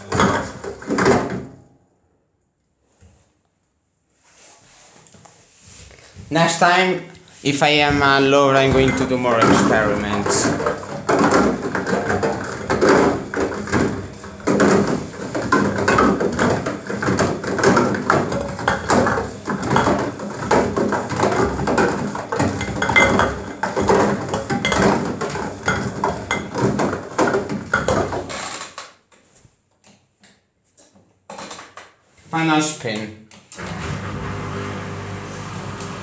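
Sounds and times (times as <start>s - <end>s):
carton clattering in washing machine: 0.0s - 1.6s, 7.7s - 29.0s.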